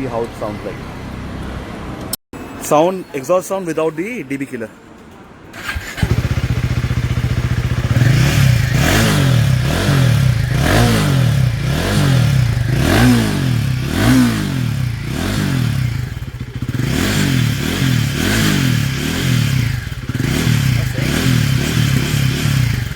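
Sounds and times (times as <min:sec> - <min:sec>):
motorcycle engine revving: 0:05.6 - 0:22.9.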